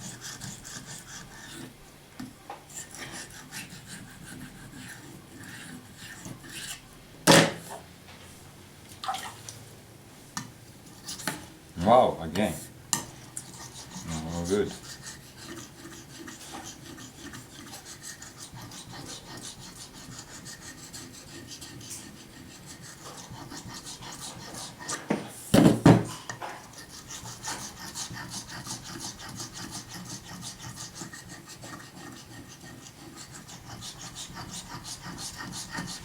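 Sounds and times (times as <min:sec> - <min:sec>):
knife scraping on whetstone: 0:00.0 - 0:01.8, 0:02.7 - 0:06.8, 0:10.9 - 0:11.5, 0:13.0 - 0:36.0
loud knocks: 0:25.6 - 0:26.1.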